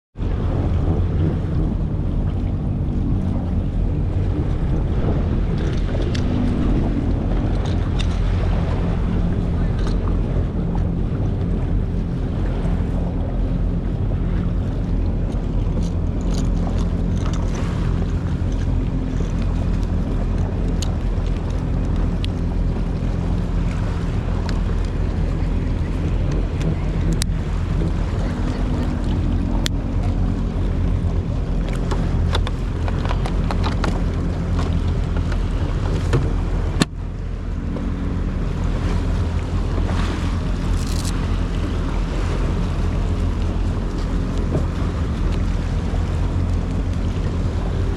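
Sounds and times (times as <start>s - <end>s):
jet ski engine running: 0.1s - 47.9s
wind buffeting microphone: 0.2s - 47.9s.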